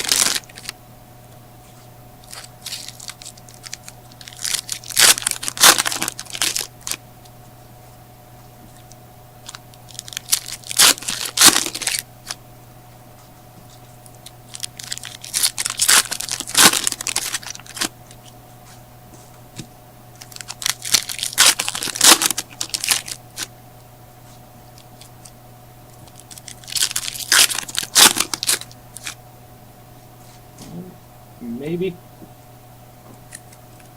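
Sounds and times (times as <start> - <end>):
card packs tearing open: 0.0 - 0.7, 2.2 - 7.0, 9.4 - 12.4, 14.5 - 17.9, 20.2 - 23.5, 26.1 - 29.2
wrappers crinkling: 0.0 - 0.8, 1.6 - 7.0, 8.7 - 12.4, 13.7 - 18.8, 20.1 - 23.5, 24.3 - 29.2
steady low hum: 0.0 - 33.9.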